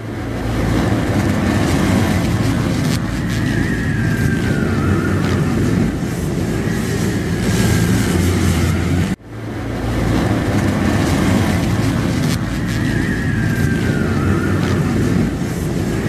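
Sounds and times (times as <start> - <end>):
motocross bike engines: 0.0 - 16.0.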